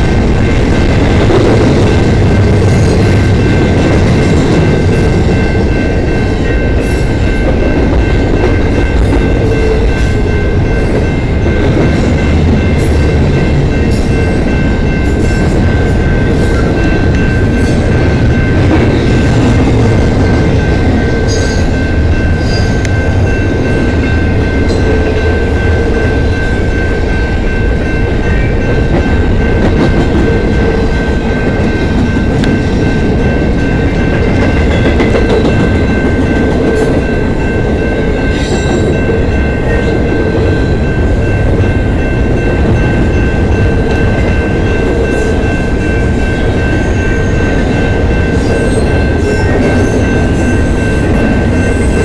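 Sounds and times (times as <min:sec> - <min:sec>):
crossing bell ringing: 0:00.0 - 0:52.0
train wheels rumbling on rails: 0:00.0 - 0:52.0.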